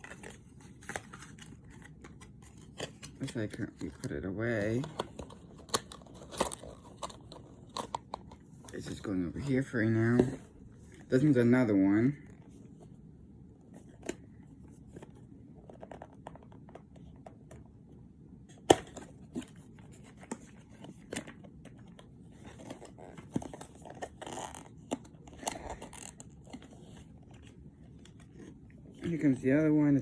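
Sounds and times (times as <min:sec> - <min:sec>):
packaging rustling and tearing: 0:00.0 - 0:09.7, 0:18.7 - 0:28.6.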